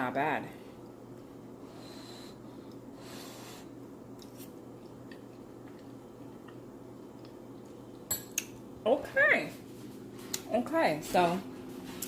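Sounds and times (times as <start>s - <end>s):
low room hum: 0.0s - 12.0s
soft chewing: 4.1s - 8.5s.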